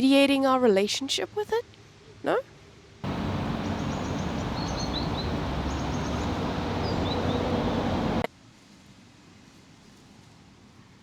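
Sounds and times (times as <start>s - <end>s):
small birds chirping: 3.0s - 8.2s
steady rushing noise: 3.0s - 8.3s.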